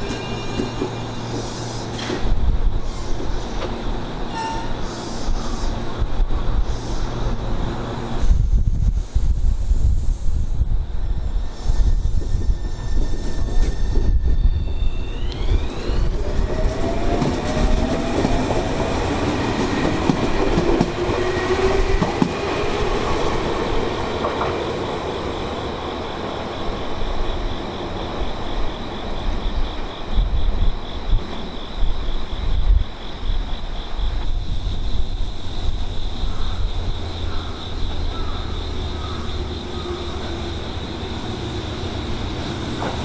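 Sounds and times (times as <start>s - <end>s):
wind buffeting microphone: 2.1s - 3.8s, 5.2s - 38.4s
high pulsing tone: 10.8s - 21.9s
electric train motors whining: 10.9s - 28.7s, 38.7s - 43.0s
wheels clattering on rails: 38.8s - 43.0s.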